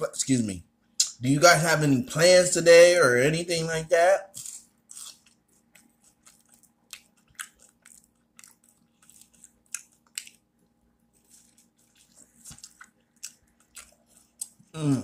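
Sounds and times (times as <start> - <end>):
faint steady hum: 0.0 - 15.0
person chewing crispy food: 4.4 - 15.0.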